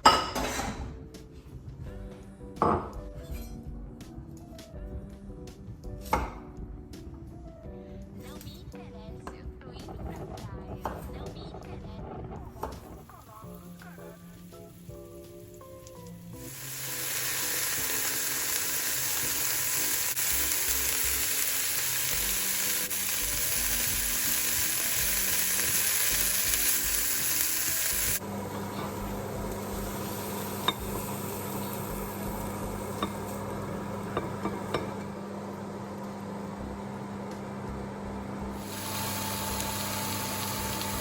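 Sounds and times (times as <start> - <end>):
food sizzling in a pan: 12.5 - 34.9, 38.5 - 41.0.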